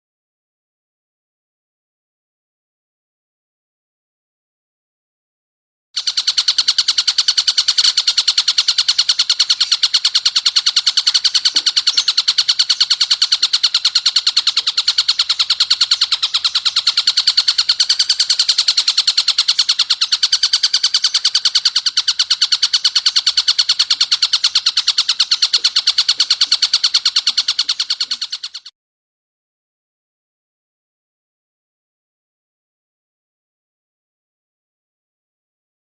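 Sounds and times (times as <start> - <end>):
bird calling sharp high notes: 6.0 - 28.7.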